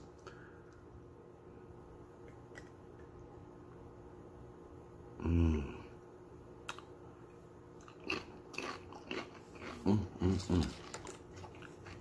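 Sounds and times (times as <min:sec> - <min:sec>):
person humming mm: 0:05.2 - 0:06.0, 0:09.8 - 0:10.7
person chewing crunchy chips: 0:07.8 - 0:12.0.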